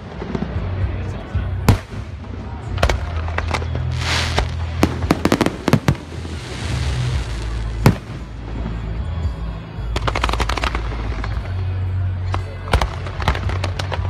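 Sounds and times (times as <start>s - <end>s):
fireworks banging: 1.6s - 11.6s, 12.6s - 14.0s
fireworks hissing: 3.7s - 8.8s.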